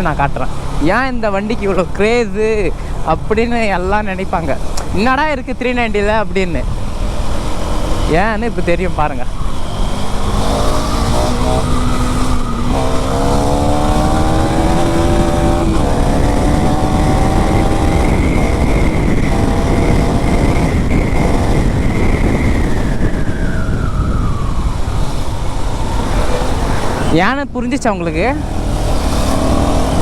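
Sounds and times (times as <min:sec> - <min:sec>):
wind rush: 0:04.5 - 0:30.0
motorcycle engine accelerating: 0:06.6 - 0:27.1, 0:28.1 - 0:30.0.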